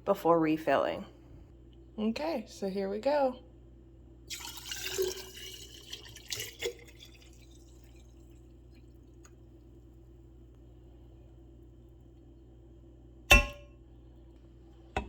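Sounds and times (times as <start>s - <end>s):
faint steady hum: 0.0s - 15.0s
liquid pouring into a feeder: 4.3s - 10.6s.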